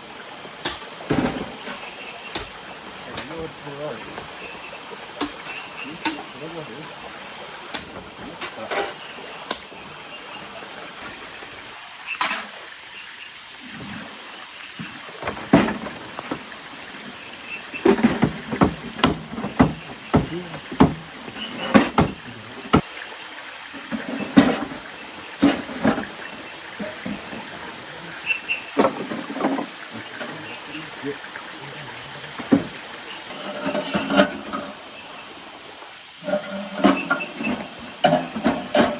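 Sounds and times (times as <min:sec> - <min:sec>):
steady rain hiss: 0:00.0 - 0:38.9
knocks and taps: 0:17.8 - 0:22.9.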